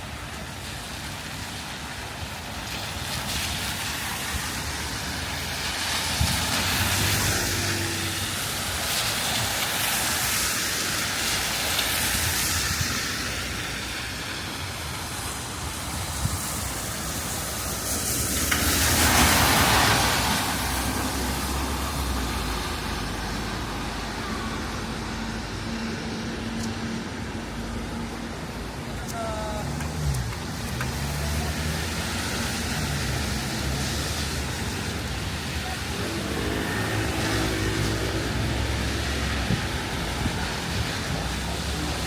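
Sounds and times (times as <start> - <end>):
city street traffic: 0.0 - 42.0
vehicle passing close: 4.5 - 8.9, 29.6 - 42.0.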